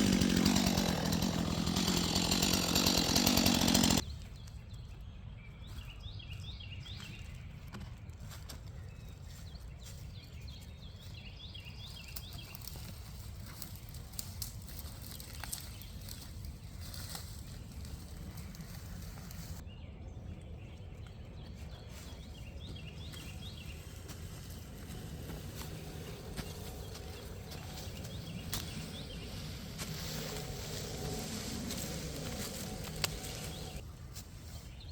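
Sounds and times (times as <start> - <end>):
bird chirping: 19.7 - 33.8.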